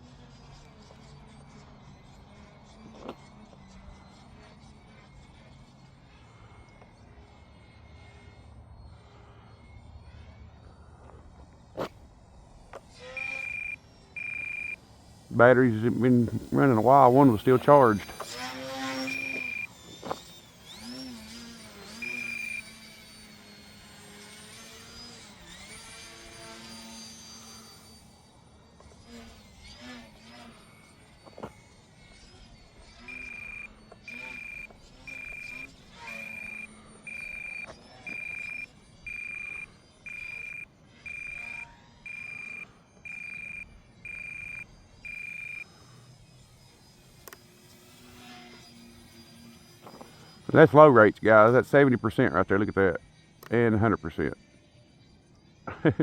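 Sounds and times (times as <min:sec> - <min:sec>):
electric propeller whining: 0:00.0 - 0:56.0
short high beep: 0:13.2 - 0:14.8, 0:19.0 - 0:19.7, 0:22.0 - 0:22.8, 0:33.1 - 0:45.6.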